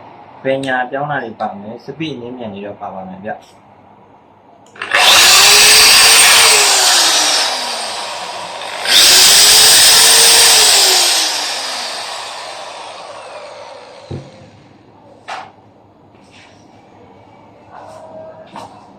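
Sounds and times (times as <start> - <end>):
impact drill motor whining: 4.8 - 14.6.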